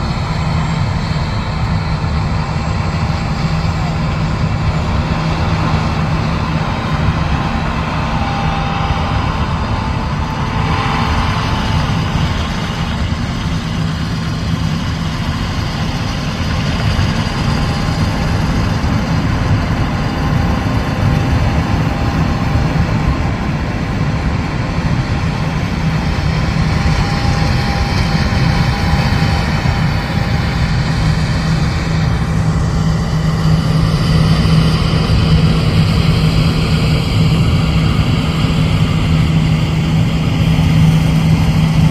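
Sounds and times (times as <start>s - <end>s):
diesel engine drone: 0.0s - 41.9s
thin steady whine: 0.0s - 41.9s.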